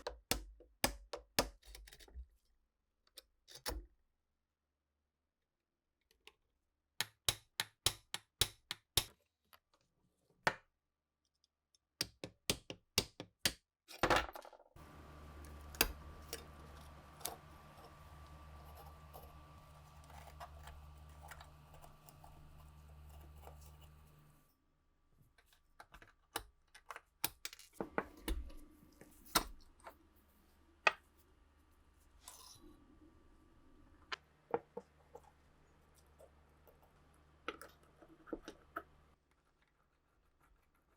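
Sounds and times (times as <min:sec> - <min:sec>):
steady low hum: 0:14.8 - 0:24.5.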